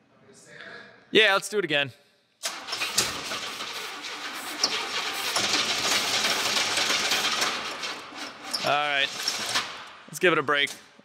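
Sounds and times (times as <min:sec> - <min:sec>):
car engine cranking and running: 0:02.4 - 0:09.9
engine knocks: 0:02.5 - 0:09.9.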